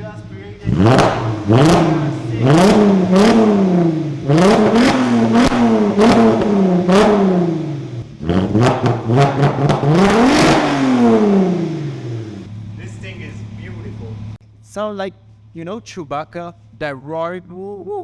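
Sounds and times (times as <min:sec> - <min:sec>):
car engine revving: 0:00.0 - 0:14.4.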